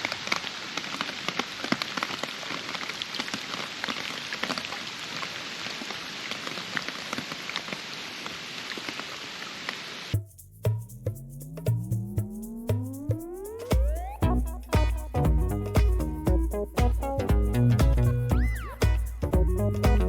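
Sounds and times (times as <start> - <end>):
raindrop ticks: 0.0 - 9.0
steady rain falling: 0.0 - 10.2.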